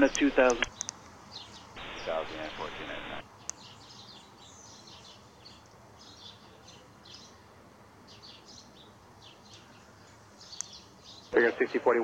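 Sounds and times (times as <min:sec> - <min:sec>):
small birds chirping: 0:00.0 - 0:07.5, 0:08.1 - 0:11.4
faint steady hiss: 0:01.7 - 0:03.2.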